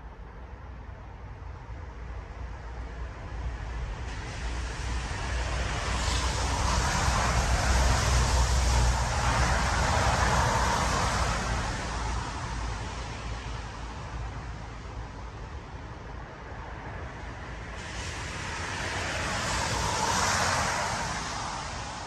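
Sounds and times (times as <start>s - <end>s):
vehicle tyre noise passing: 3.2s - 22.0s.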